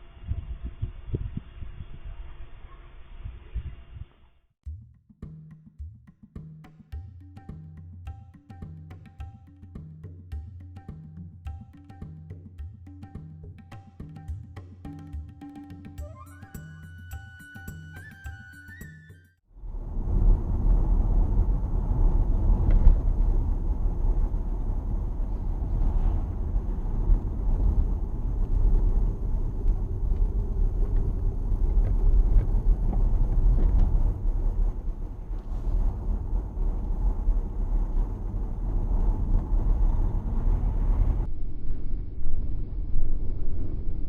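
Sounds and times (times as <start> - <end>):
car road and engine rumble: 19.6 - 41.3.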